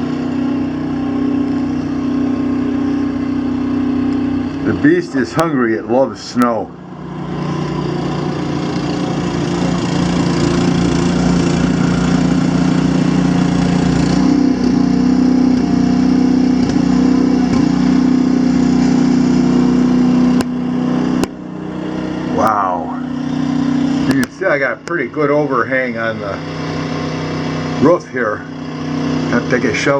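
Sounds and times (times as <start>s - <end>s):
snowblower engine running: 0.0s - 29.9s.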